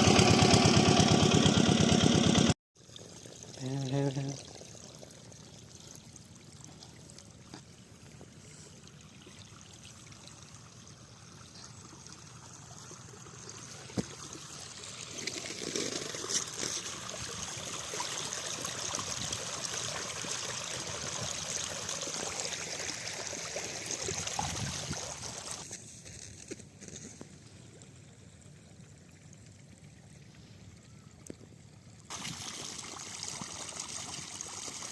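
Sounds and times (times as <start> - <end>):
water pouring and trickling: 2.8 - 25.7, 32.1 - 34.9.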